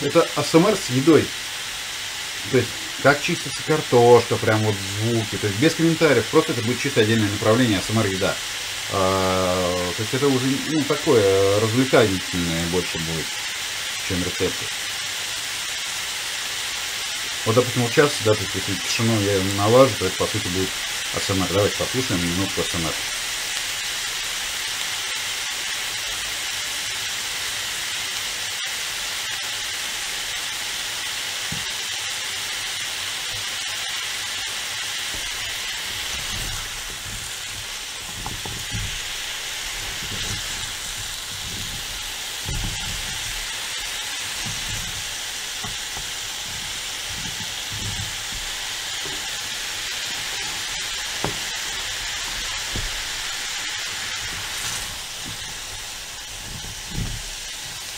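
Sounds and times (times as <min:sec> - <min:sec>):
vegetables sizzling in hot oil: 0:00.0 - 0:57.9
spatula scraping a pan: 0:35.0 - 0:57.9.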